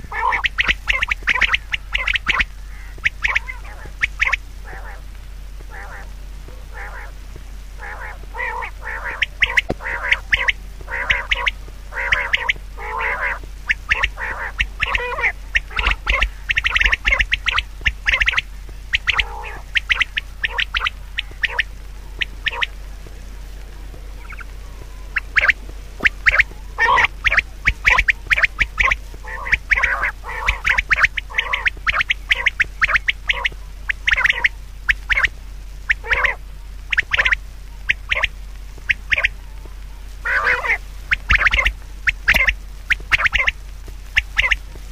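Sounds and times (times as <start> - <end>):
short harsh bird calls: 0.1 - 5.0, 5.7 - 6.1, 7.8 - 22.7, 24.2 - 35.3, 40.3 - 43.6.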